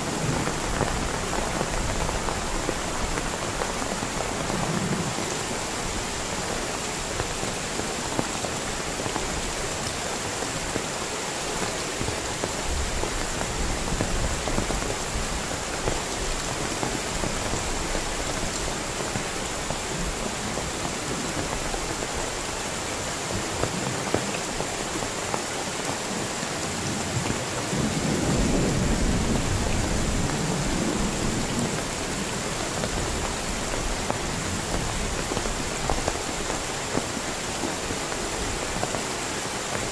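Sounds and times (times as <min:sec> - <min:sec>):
heavy rain: 0:00.0 - 0:39.9
thunder rumbling: 0:27.7 - 0:31.9.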